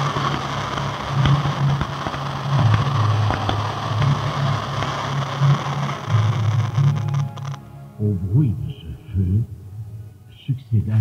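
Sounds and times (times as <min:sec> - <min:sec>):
fireworks crackling and popping: 0:00.0 - 0:07.7.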